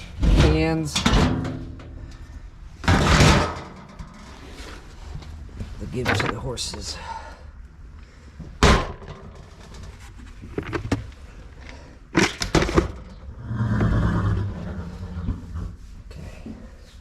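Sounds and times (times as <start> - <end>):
feed cans and buckets clattering: 2.8 - 4.9, 5.6 - 7.0, 12.1 - 13.2.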